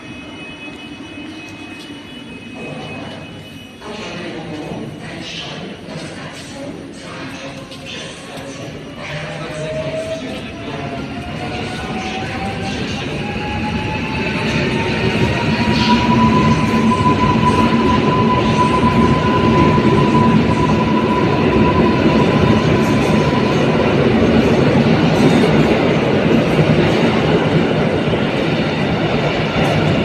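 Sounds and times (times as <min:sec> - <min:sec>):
train wheels rumbling on rails: 0:07.3 - 0:30.0.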